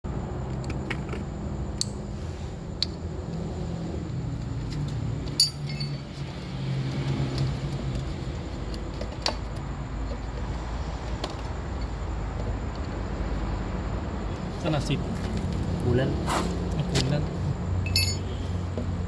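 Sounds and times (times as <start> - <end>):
sharp metallic clink: 5.4 - 6.0, 17.9 - 18.4.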